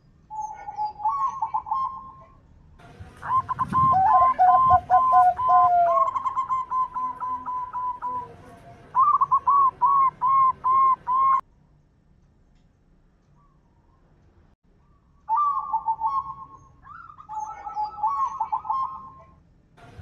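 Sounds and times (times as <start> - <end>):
doves cooing: 0.3 - 2.4, 3.1 - 11.4, 15.3 - 20.0.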